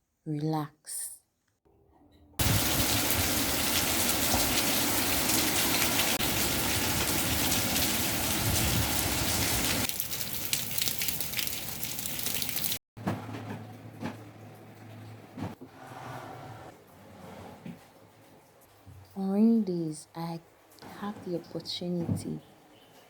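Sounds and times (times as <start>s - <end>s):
heavy rain falling: 2.4s - 12.8s.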